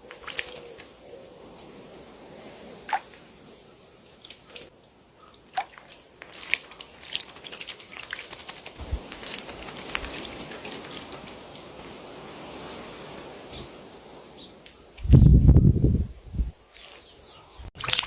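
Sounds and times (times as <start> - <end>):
birds splashing in water: 0.0 - 13.9, 16.7 - 17.1.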